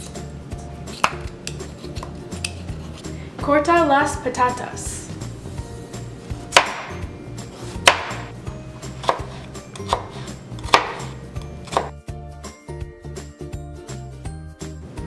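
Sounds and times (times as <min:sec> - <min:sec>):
knife chopping on cutting board: 0:00.9 - 0:03.1, 0:06.5 - 0:07.0, 0:07.6 - 0:12.0.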